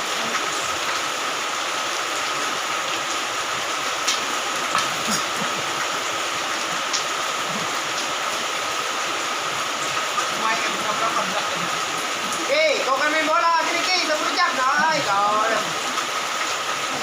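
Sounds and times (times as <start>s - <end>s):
steady hissing noise: 0.0s - 17.0s.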